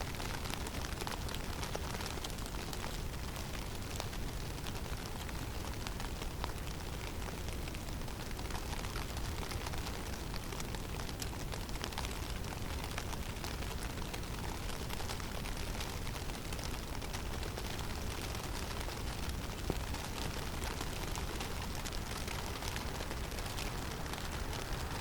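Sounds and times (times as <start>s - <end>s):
snow and ice ticking: 14.8s - 25.0s
wind rumble: 18.8s - 25.0s.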